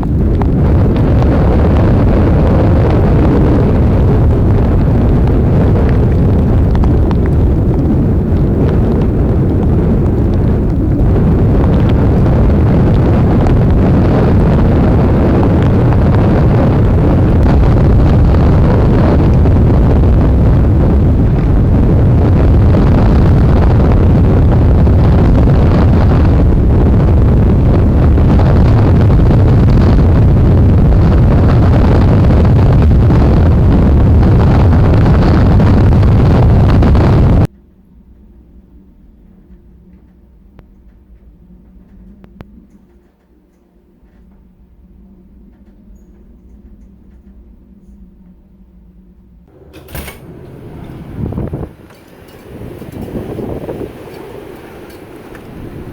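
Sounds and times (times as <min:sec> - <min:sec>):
wind blowing across microphone: 0:00.0 - 0:55.9.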